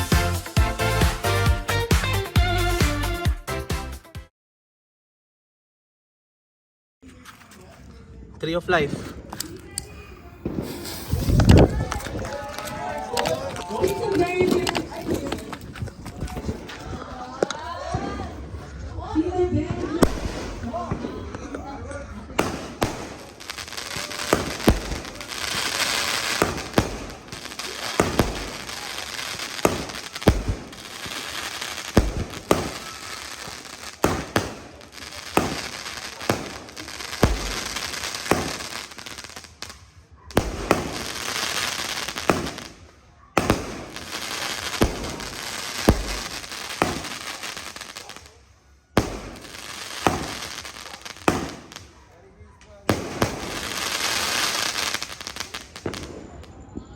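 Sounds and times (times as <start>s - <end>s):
fireworks rushing hiss: 8.7s - 17.0s, 20.0s - 21.5s, 22.3s - 48.4s, 49.0s - 52.0s, 52.9s - 56.3s
fireworks bangs: 8.7s - 18.8s, 19.5s - 48.4s, 49.0s - 56.9s.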